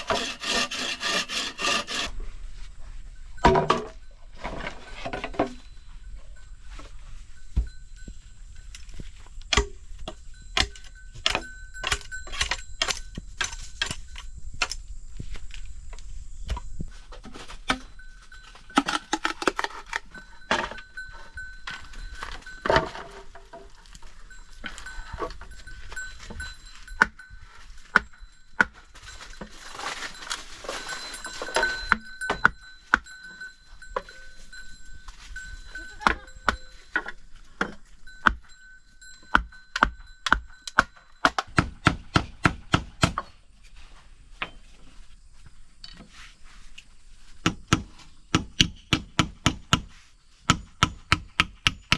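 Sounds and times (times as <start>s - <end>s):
bell-like ringing tone: 2.8s - 14.5s, 17.8s - 18.8s, 19.9s - 41.4s.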